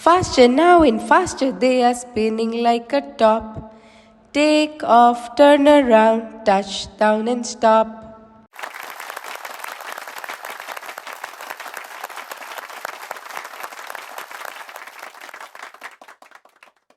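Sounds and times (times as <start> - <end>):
applause: 8.5 - 16.9.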